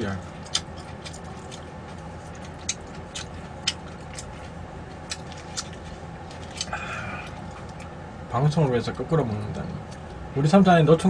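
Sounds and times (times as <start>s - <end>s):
steady low hum: 0.0s - 11.0s
person chewing with wet smacks: 0.4s - 8.0s.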